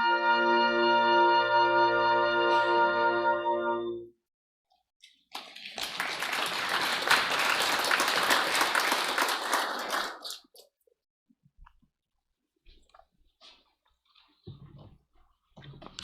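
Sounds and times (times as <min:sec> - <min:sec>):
audience applauding: 0:05.3 - 0:10.5.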